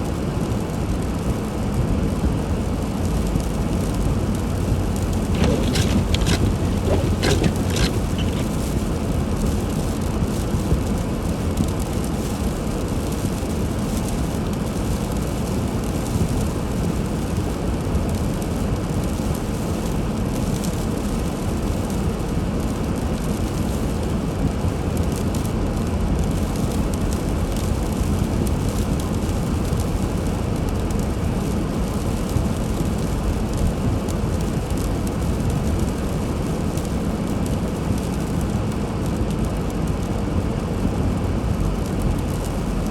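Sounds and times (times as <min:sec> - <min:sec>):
road noise: 0:02.4 - 0:16.3, 0:22.8 - 0:42.9
car engine rumble: 0:02.6 - 0:11.4, 0:23.6 - 0:42.9.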